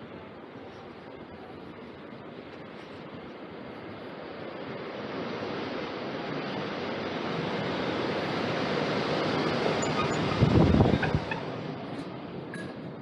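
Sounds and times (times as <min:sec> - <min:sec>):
road vehicle passing: 0:04.1 - 0:13.0.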